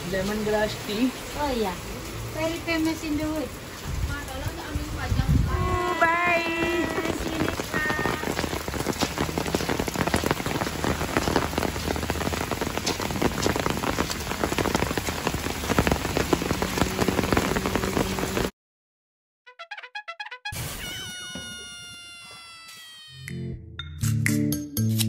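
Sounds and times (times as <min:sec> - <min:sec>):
heavy rain falling: 0:00.0 - 0:18.5.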